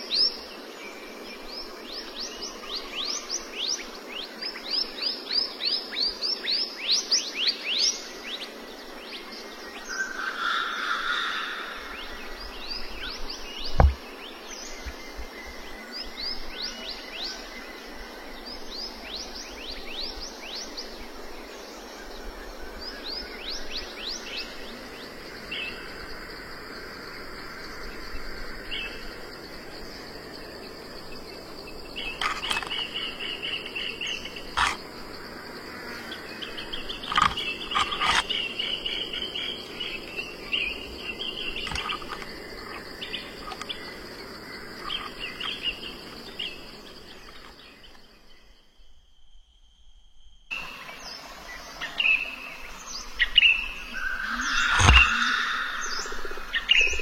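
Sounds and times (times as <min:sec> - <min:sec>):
warbling bird calls: 0:00.0 - 0:48.3, 0:50.5 - 0:57.0
insect buzzing: 0:00.0 - 0:57.0
falling bird chirps: 0:32.0 - 0:34.8, 0:51.8 - 0:57.0
sharp clicks: 0:34.6 - 0:34.8, 0:54.6 - 0:55.4.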